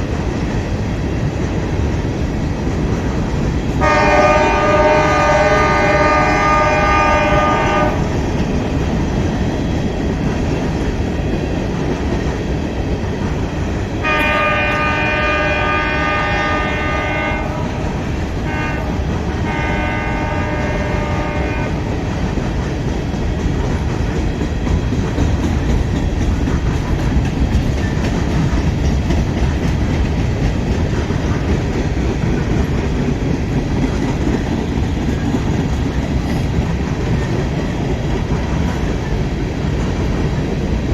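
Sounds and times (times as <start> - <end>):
passing train rumble: 0.0 - 40.9
locomotive air horn: 3.8 - 8.1, 14.0 - 21.9.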